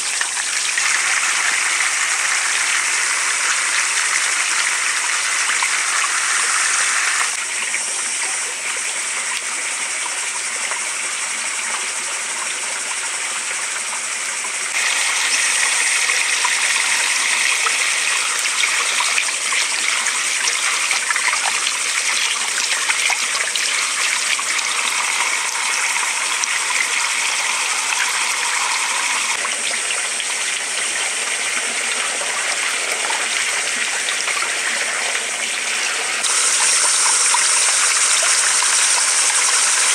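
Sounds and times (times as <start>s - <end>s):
running water rushing: 0.0s - 10.5s, 14.5s - 39.9s.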